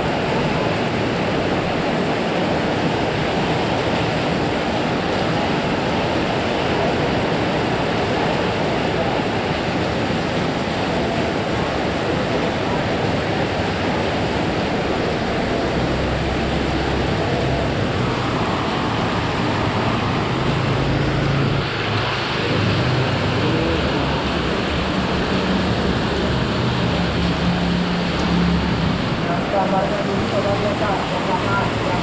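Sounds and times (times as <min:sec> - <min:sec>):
heavy rain pouring: 0:00.0 - 0:32.0
vehicle engines passing: 0:13.4 - 0:32.0.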